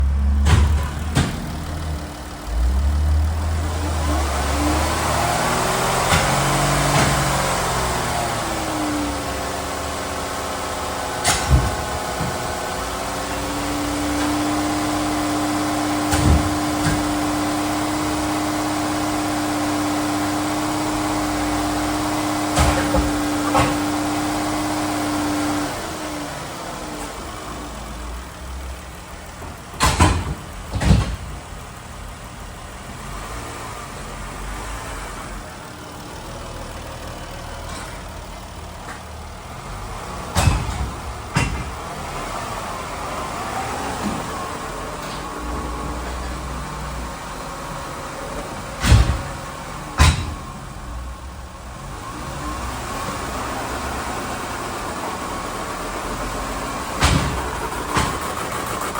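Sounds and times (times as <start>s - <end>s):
car engine running: 0.0s - 58.9s
loud clunks: 0.2s - 2.2s, 5.8s - 7.6s, 11.1s - 12.7s, 15.8s - 18.4s, 22.4s - 25.2s, 29.2s - 31.6s, 40.0s - 42.2s, 48.4s - 50.6s, 56.6s - 58.9s.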